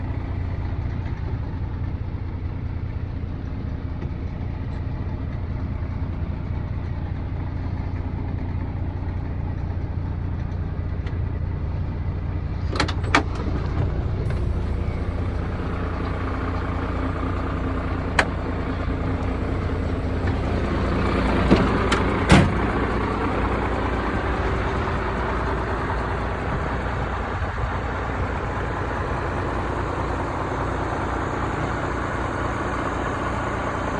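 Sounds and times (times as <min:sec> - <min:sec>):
diesel truck engine idling: 0:00.0 - 0:33.9.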